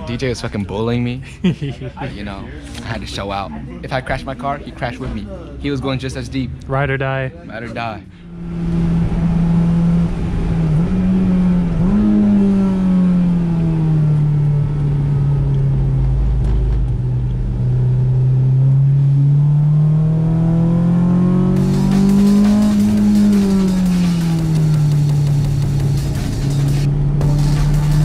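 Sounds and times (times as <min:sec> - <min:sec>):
car engine at high revs: 0:08.2 - 0:28.0.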